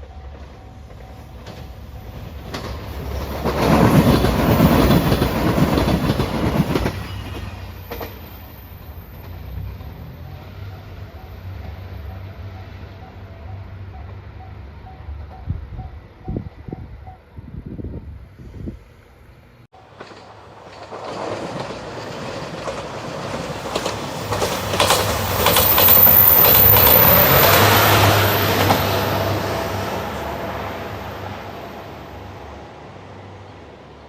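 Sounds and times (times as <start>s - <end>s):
train passing: 0.0s - 34.0s
wheels clattering over rail joints: 0.8s - 10.4s, 19.8s - 29.4s.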